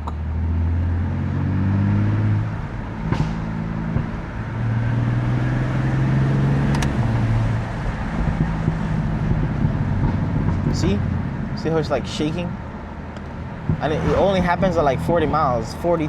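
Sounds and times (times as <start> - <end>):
car engine cruising from cabin: 0.1 - 10.4, 13.3 - 15.7.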